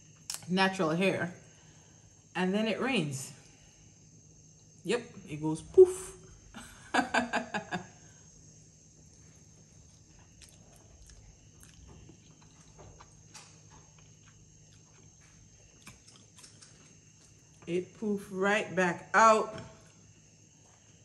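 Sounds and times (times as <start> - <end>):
steady background hum: 0.0 - 21.0
chewing noodles: 9.1 - 17.7.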